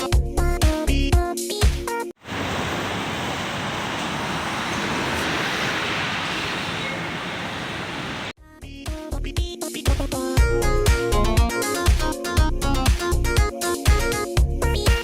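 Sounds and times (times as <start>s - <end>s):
music: 0.0s - 2.1s, 8.4s - 15.0s
steady rushing noise: 2.2s - 8.3s.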